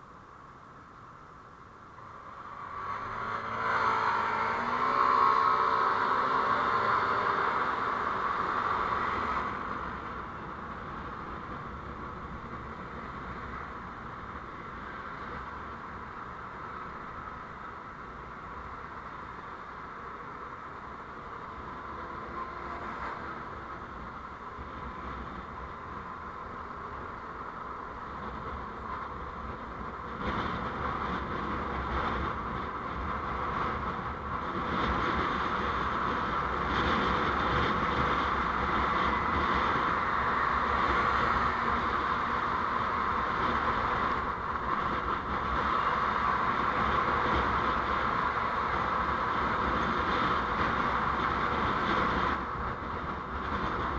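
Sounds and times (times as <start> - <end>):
vehicle driving on road: 0.0 - 53.9.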